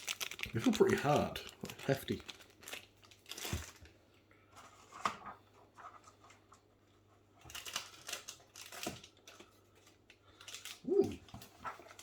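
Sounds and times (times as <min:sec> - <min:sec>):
plastic snack wrappers crinkling: 0:00.0 - 0:04.0, 0:07.4 - 0:12.0.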